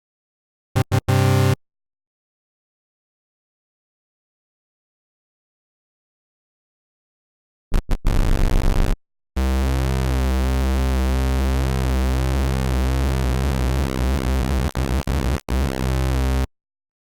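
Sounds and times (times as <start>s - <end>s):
synth square-wave lead: 0.8s - 1.6s, 9.4s - 16.5s.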